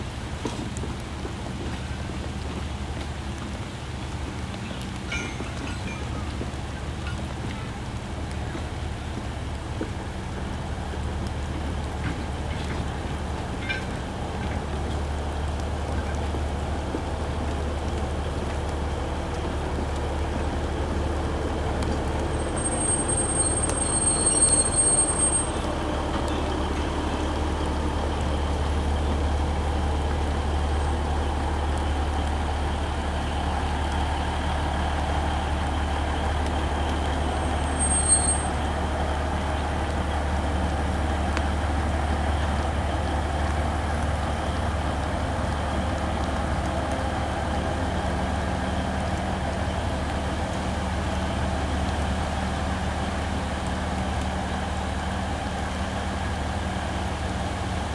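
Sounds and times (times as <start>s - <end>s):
vehicle rumbling: 0.0s - 57.9s
thin high squeal: 22.4s - 25.6s, 37.4s - 38.6s.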